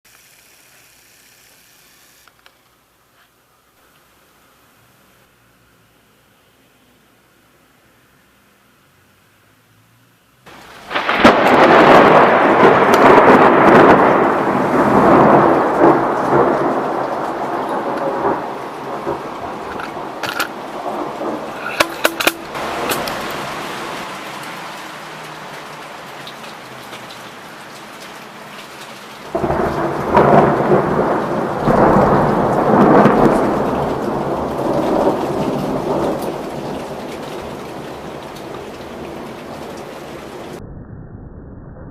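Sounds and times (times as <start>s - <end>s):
heavy rain: 3.7s - 40.6s
thunder rumbling: 10.5s - 27.5s, 28.2s - 41.9s.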